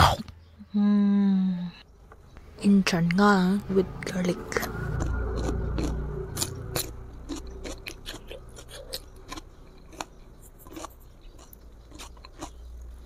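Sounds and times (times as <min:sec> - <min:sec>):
crunching raw garlic: 0:04.6 - 0:13.0.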